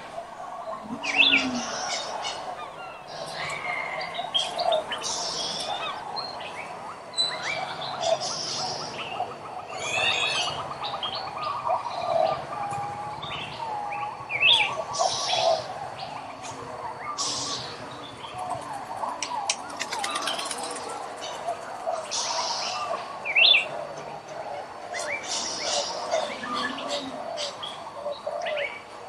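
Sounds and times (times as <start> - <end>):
birds chirping and whistling: 0.0 - 29.0
fast bird trill: 19.1 - 21.3.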